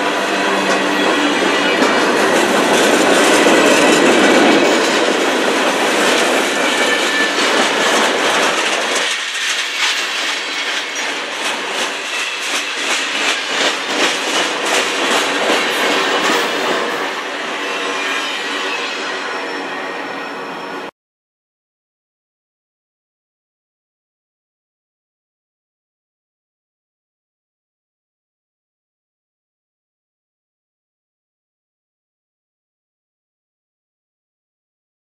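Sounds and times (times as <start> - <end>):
deep train rumble: 0.0 - 17.8
train wheels clacking over rail joints: 0.1 - 18.9.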